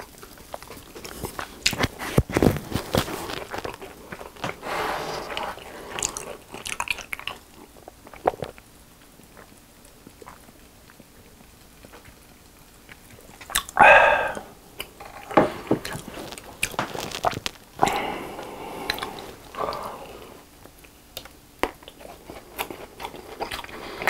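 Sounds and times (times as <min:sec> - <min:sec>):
crunchy snack chewing: 0:00.0 - 0:08.6, 0:15.8 - 0:24.0
wet mouth clicks: 0:13.0 - 0:14.9, 0:18.8 - 0:19.9.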